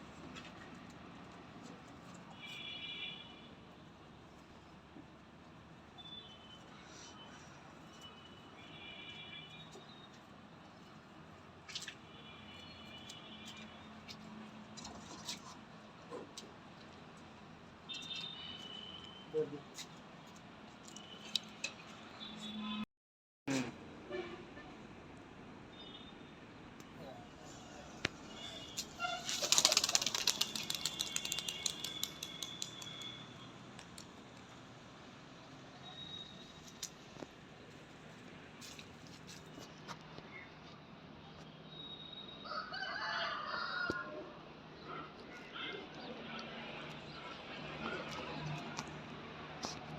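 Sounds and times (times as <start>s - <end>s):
pigeon wings flapping: 29.2s - 33.2s.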